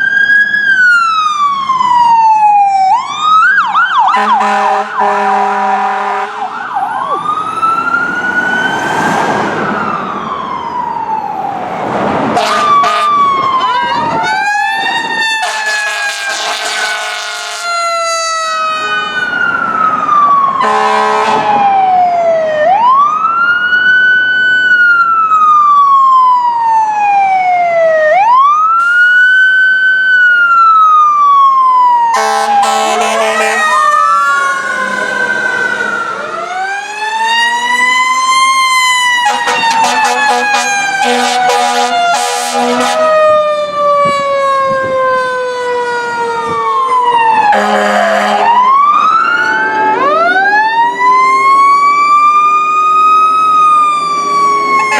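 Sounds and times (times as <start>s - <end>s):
fire truck siren wailing: 0.0s - 54.9s
air horn blasts: 4.1s - 6.5s, 12.3s - 13.2s, 15.4s - 17.7s, 20.6s - 21.5s, 32.2s - 36.7s, 39.2s - 43.2s, 47.5s - 48.7s.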